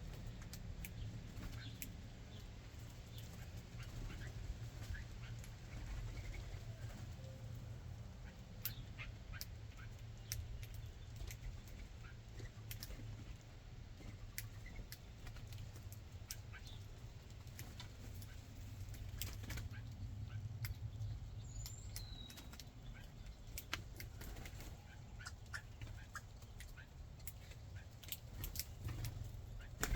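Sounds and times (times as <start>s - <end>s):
steady low rumble: 13.2s - 24.2s.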